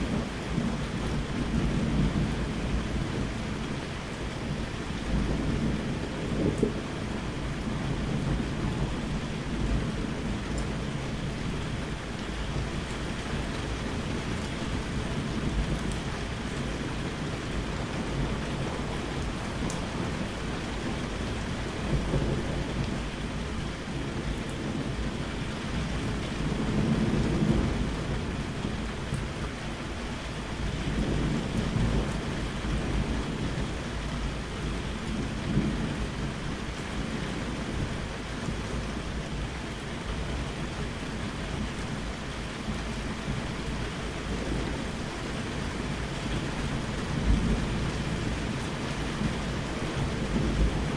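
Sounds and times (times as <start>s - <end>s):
rolling thunder: 0.0s - 12.0s, 13.3s - 29.6s
heavy rain: 0.0s - 50.9s.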